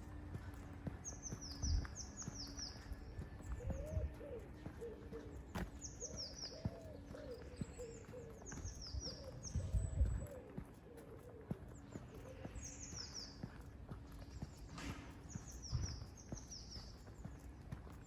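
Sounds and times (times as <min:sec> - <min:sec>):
pigeon cooing: 0:03.5 - 0:12.6.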